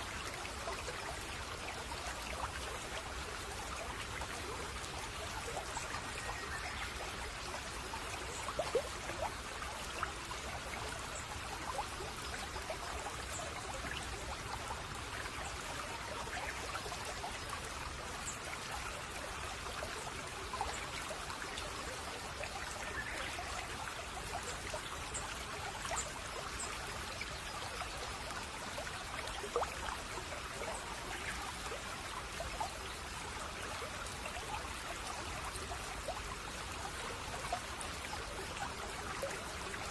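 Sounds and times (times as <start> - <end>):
brook babbling: 0.0 - 39.9.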